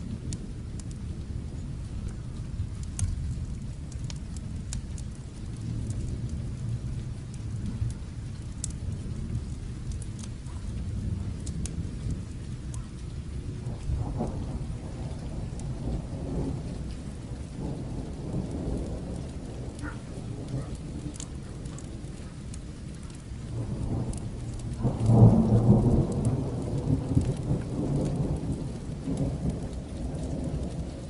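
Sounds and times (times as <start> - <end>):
distant thunder rumble: 0.0 - 31.0
fireplace fire crackling: 0.0 - 31.0
steady rain: 0.0 - 31.0.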